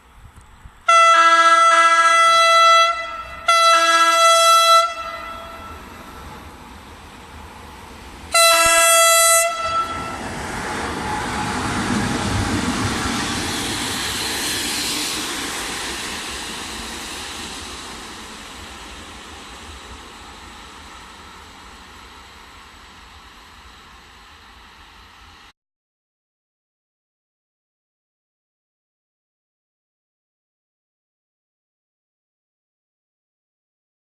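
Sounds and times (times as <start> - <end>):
train passing: 0.0 - 25.5
train horn blast: 0.9 - 5.9, 8.3 - 12.4.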